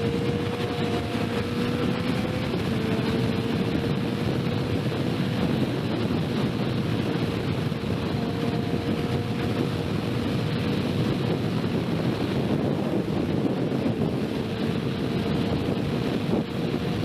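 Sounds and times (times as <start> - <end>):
motorcycle engine: 0.0 - 17.0
wind rush on microphone: 0.0 - 17.0.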